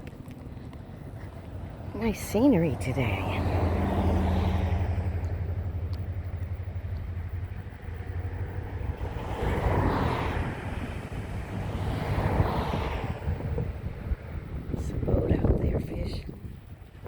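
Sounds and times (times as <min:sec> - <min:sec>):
low engine hum: 0:00.0 - 0:17.0
rushing noise: 0:06.5 - 0:15.2.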